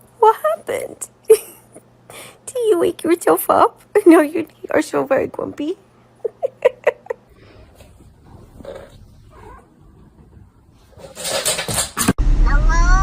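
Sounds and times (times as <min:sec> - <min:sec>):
cat grumbling: 0:08.2 - 0:09.9.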